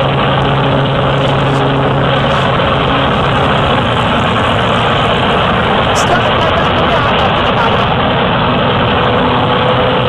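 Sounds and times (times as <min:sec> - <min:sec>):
light plane engine and propeller: 0:00.0 - 0:10.0.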